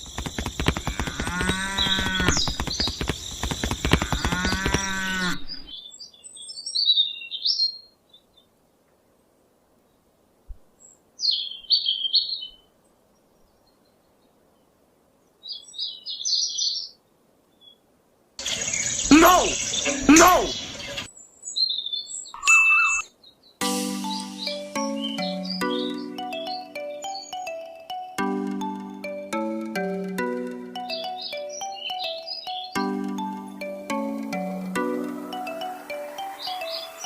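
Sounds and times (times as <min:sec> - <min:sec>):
small birds chirping: 0:00.0 - 0:08.6, 0:10.7 - 0:37.0
cow mooing: 0:01.1 - 0:02.4.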